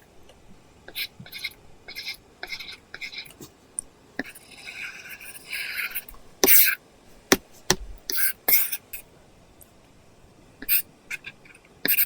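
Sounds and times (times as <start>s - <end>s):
stylus tap: 7.3s - 8.0s.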